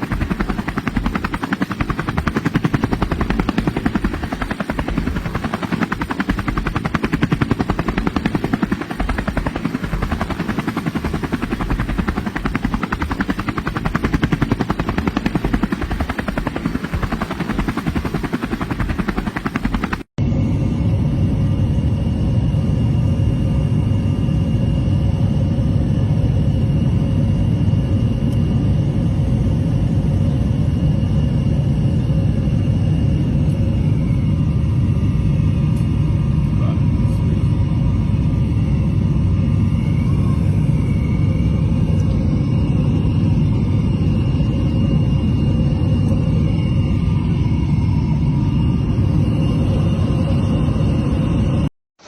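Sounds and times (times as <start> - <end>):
motor running with fast pulse: 0.0 - 20.1.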